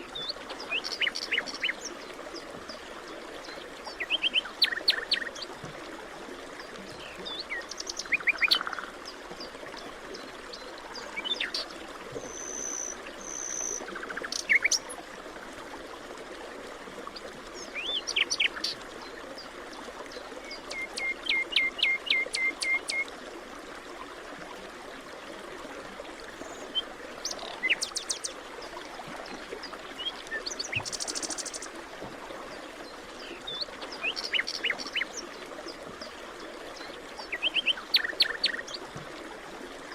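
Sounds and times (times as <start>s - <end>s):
birds singing and calling: 0.2s - 1.9s, 3.5s - 5.5s, 6.9s - 8.9s, 11.0s - 15.0s, 20.4s - 23.0s, 26.4s - 28.3s, 30.0s - 31.7s, 33.2s - 35.2s, 36.8s - 38.8s.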